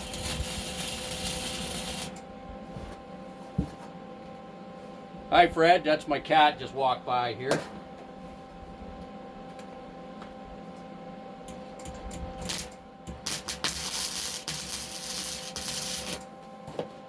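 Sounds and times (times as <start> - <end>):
arc welding crackling and hissing: 0.0 - 2.2, 11.8 - 16.3
welder humming: 0.0 - 2.9, 11.5 - 16.8.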